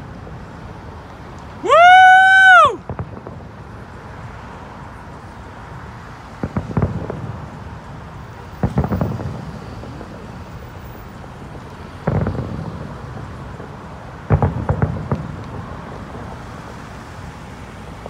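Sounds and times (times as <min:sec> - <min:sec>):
distant fireworks bursting: 0:00.0 - 0:18.0.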